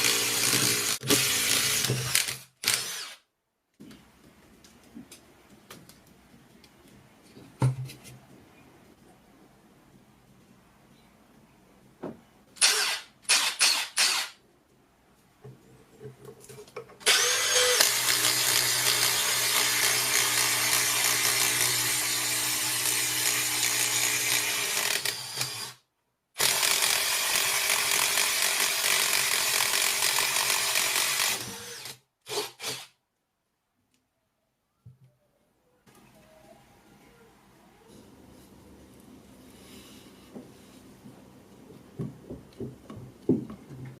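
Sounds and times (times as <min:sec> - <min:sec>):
cordless screwdriver motor: 0:00.0 - 0:03.2, 0:12.6 - 0:14.3, 0:17.0 - 0:18.5.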